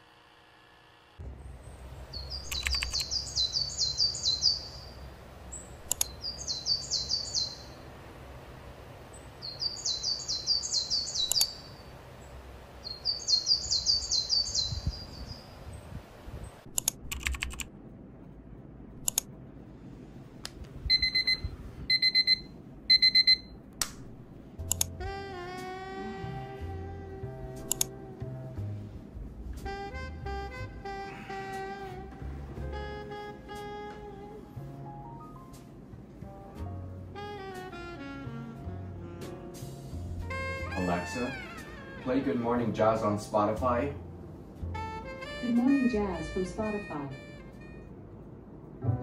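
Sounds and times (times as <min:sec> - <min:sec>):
songbird singing: 0:01.3 - 0:16.6
sharp clicks: 0:02.4 - 0:03.1, 0:05.8 - 0:06.2, 0:11.2 - 0:11.6, 0:16.7 - 0:17.7, 0:19.0 - 0:19.3, 0:23.8 - 0:24.9, 0:27.7 - 0:27.9
alarm clock beeping: 0:20.9 - 0:23.5.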